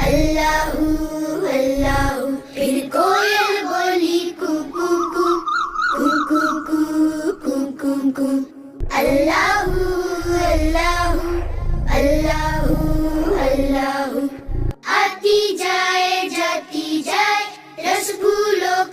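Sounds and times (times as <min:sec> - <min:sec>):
low rumble: 0:00.0 - 0:02.2, 0:08.8 - 0:14.8
background music: 0:00.0 - 0:18.9
children's song singing: 0:00.0 - 0:18.9.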